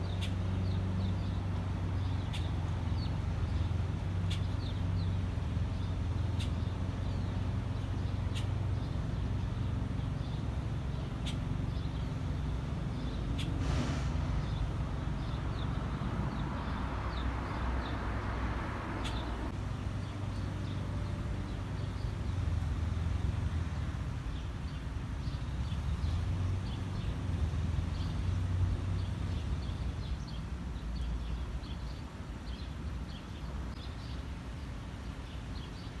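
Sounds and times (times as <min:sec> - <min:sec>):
nestlings peeping: 0:02.0 - 0:19.6.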